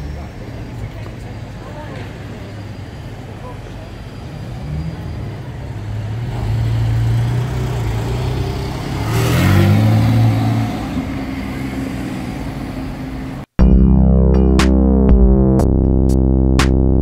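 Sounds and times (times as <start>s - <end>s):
sports car engine accelerating: 6.1s - 13.1s.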